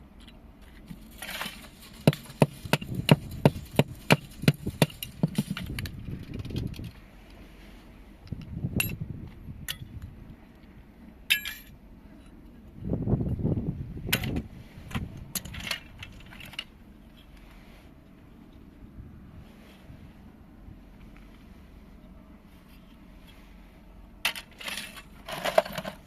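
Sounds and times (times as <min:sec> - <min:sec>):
dull handling thumps: 0:01.9 - 0:05.8.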